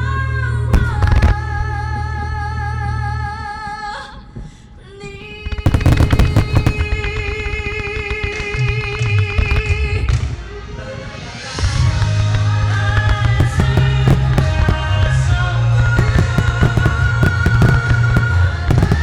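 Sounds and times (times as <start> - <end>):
fireworks bangs and crackles: 0.8 - 1.4, 5.4 - 19.0
show music over loudspeakers: 5.6 - 7.0, 11.1 - 19.0.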